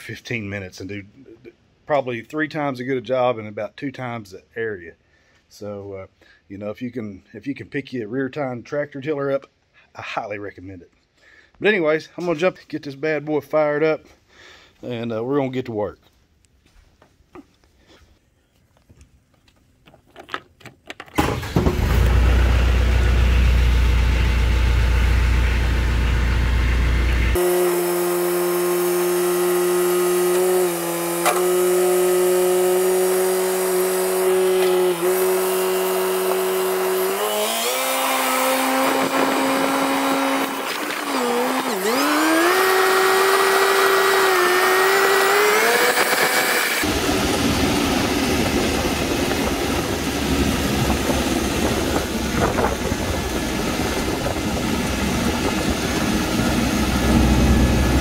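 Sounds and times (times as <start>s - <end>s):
tractor diesel engine revving: 21.2s - 58.0s
dense low rumble: 22.8s - 27.4s, 46.9s - 58.0s.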